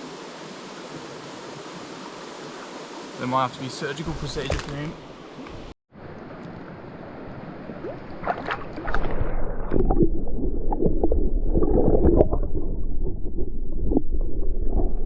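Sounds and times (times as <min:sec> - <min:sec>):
creek water gurgling: 0:07.6 - 0:15.0.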